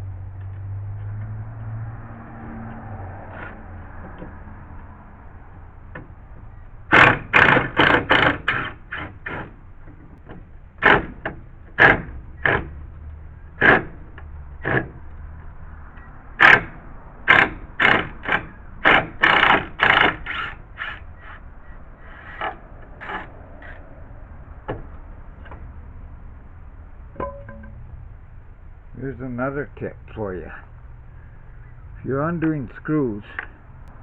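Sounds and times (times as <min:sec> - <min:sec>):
metal knocking and scraping: 0:27.1 - 0:27.9.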